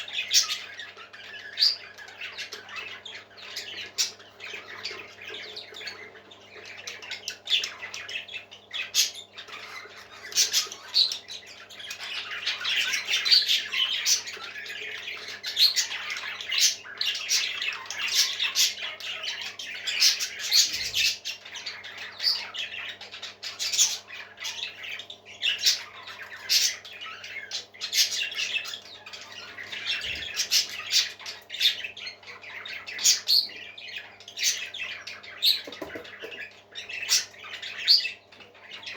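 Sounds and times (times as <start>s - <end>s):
parrots squawking and chirping: 0.0s - 38.9s.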